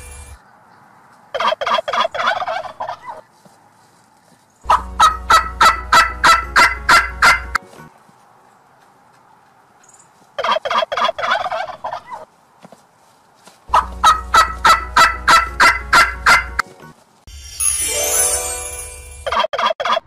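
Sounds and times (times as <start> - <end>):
turkeys gobbling: 1.3 - 3.3, 4.7 - 7.8, 10.4 - 12.3, 13.7 - 16.9, 19.3 - 20.0.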